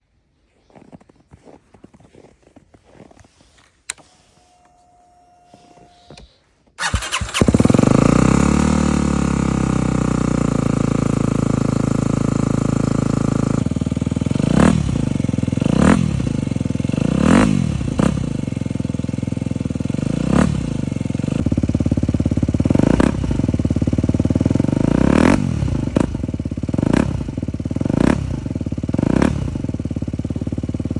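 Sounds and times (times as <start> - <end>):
motorcycle engine starting and idling: 3.8 - 30.9
engine revving in short blips: 3.9 - 9.5.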